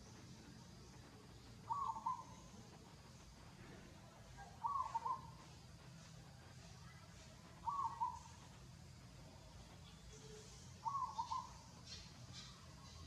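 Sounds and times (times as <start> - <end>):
bird calling: 1.6 - 2.6, 4.5 - 5.5, 7.6 - 8.4, 10.2 - 13.0.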